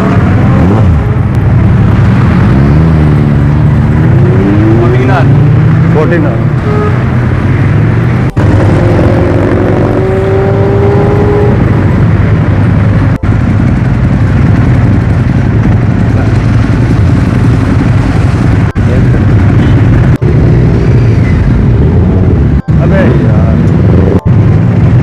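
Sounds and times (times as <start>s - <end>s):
superbike engines running: 11.8s - 25.0s.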